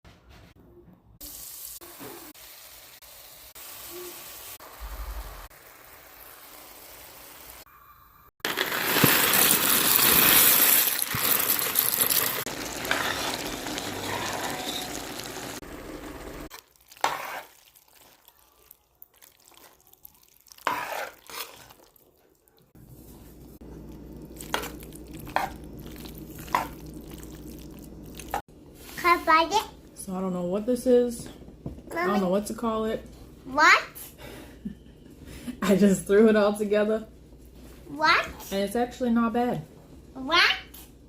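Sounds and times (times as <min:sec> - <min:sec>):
food sizzling in a pan: 0:01.2 - 0:22.0, 0:23.0 - 0:29.6.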